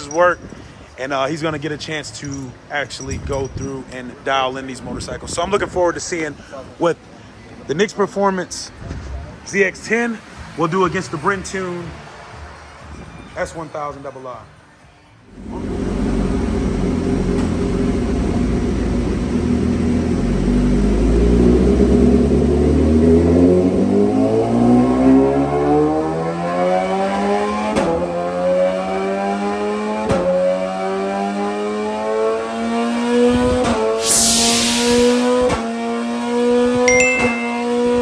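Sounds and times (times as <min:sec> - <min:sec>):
motorcycle engine revving under load: 0:15.3 - 0:33.9
burst of hiss: 0:34.0 - 0:35.2.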